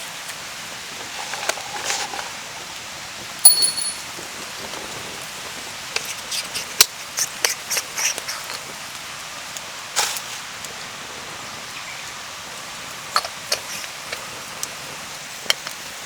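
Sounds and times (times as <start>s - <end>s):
rain pattering on a tarp: 0.0s - 3.3s, 4.2s - 16.0s
metallic clink: 3.5s - 4.1s.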